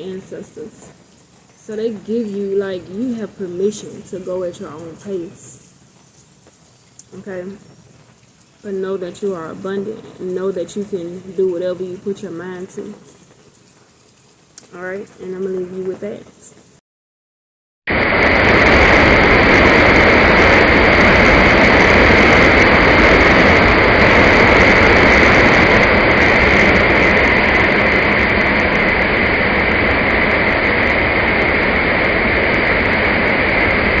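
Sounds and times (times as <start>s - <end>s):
loud steady rushing noise: 17.9s - 34.0s.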